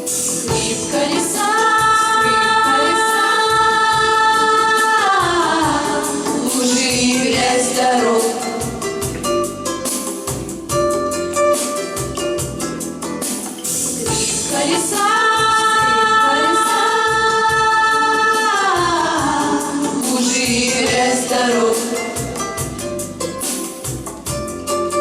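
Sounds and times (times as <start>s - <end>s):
instrumental accompaniment: 0.0s - 25.0s
steady drum beat: 0.0s - 25.0s
voices singing: 0.3s - 9.1s, 14.0s - 22.7s.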